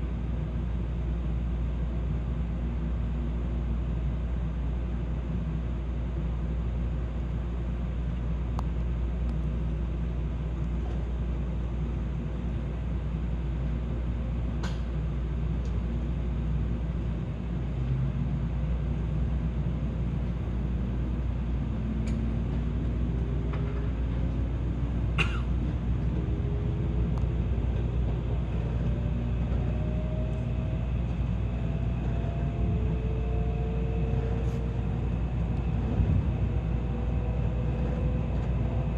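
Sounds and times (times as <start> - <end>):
train low rumble: 0.0 - 38.9
rising whine: 20.0 - 38.9.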